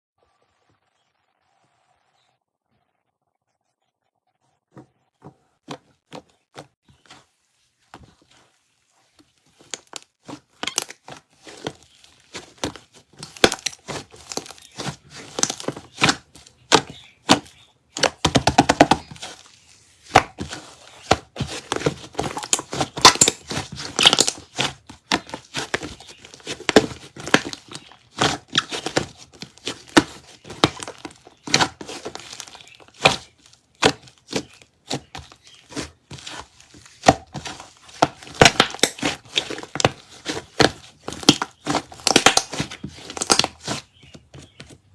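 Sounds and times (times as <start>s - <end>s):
slime crackling and popping: 21.6s - 34.4s, 37.0s - 43.8s.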